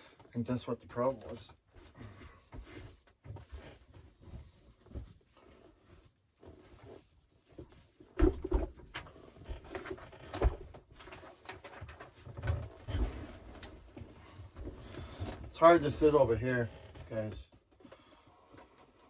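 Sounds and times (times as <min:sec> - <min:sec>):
knocks and thumps of objects handled: 0:01.0 - 0:15.5.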